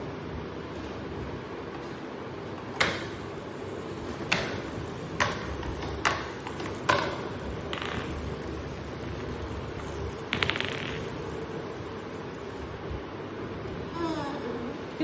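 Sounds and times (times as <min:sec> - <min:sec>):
plastic balls clacking in toy: 0:02.6 - 0:12.6.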